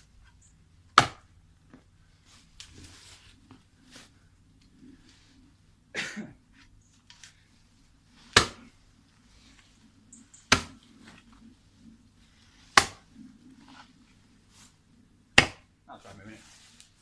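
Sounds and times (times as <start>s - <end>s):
tool chopping into roots: 1.0s - 1.3s, 8.3s - 8.7s, 10.5s - 10.9s, 12.7s - 13.1s, 15.4s - 15.7s.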